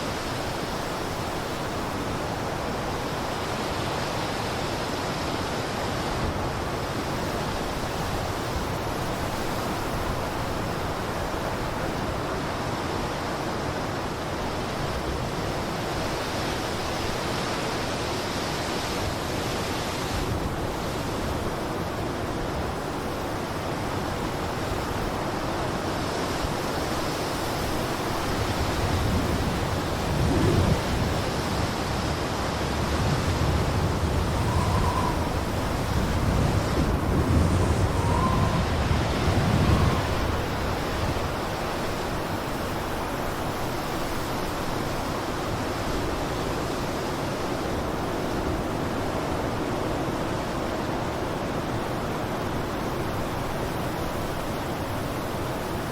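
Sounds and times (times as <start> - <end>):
blizzard wind rushing: 17.9 - 55.9.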